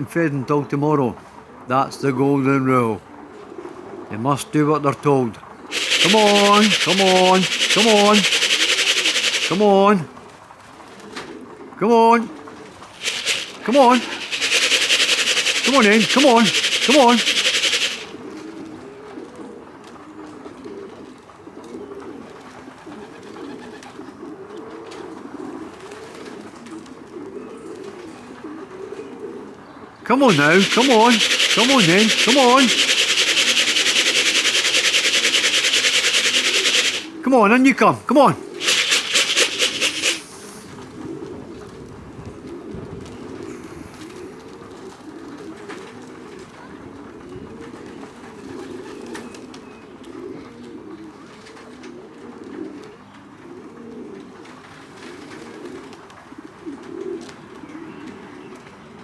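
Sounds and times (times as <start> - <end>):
pigeons cooing: 5.7 - 9.8, 13.0 - 19.2.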